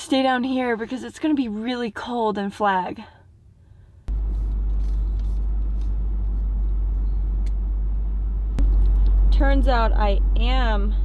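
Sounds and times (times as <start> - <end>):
road and engine rumble: 3.9 - 11.0.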